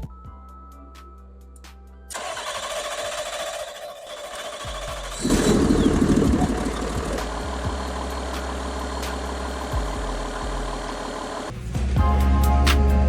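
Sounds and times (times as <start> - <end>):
diesel engine starting and idling: 2.1 - 11.5.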